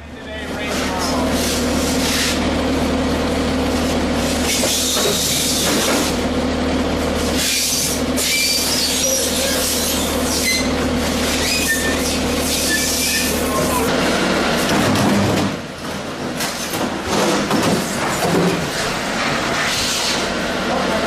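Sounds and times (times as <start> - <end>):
factory machinery humming: 0.0 - 21.0
short high squeals: 7.4 - 13.9.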